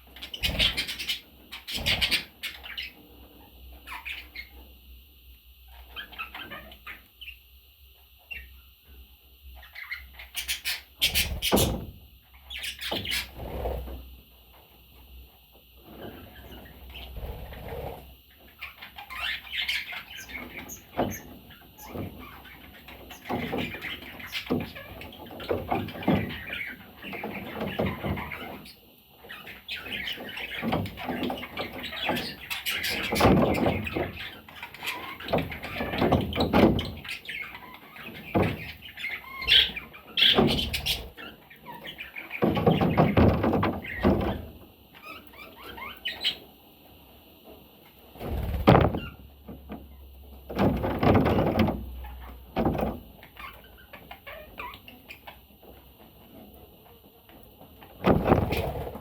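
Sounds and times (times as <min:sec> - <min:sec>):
budgerigar chirping: 0:37.0 - 0:42.4.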